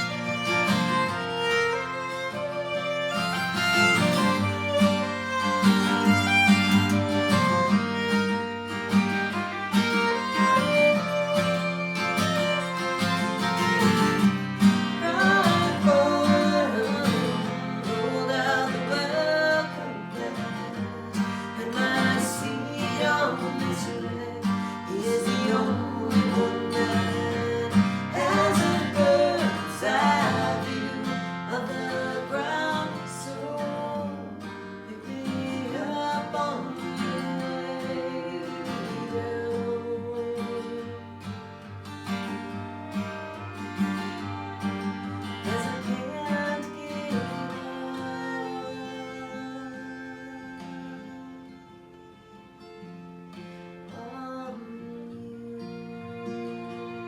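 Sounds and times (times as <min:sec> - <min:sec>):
strummed acoustic guitar: 0:00.0 - 0:57.0
person singing: 0:09.1 - 0:41.2, 0:44.2 - 0:51.6, 0:53.9 - 0:57.0.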